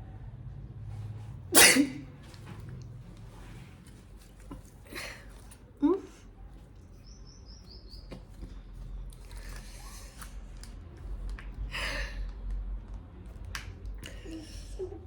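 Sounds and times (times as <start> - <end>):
high falling bird chirps: 7.0 - 8.1.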